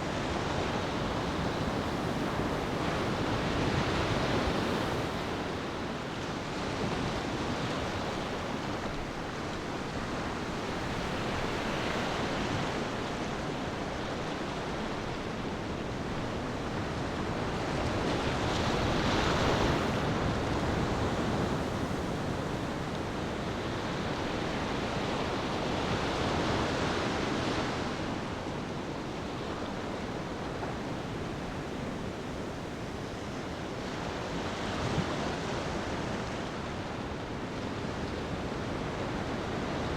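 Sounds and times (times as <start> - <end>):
ocean waves washing onto beach: 0.0 - 39.9.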